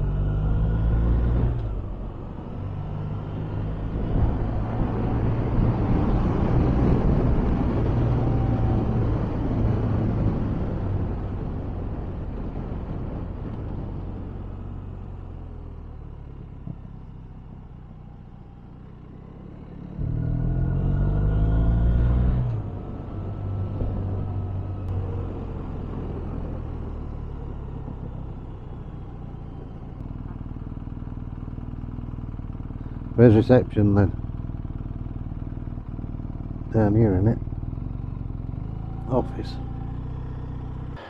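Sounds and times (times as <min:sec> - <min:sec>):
wind noise: 0:01.7 - 0:15.0, 0:22.4 - 0:28.3
motorcycle engine running: 0:25.0 - 0:41.0.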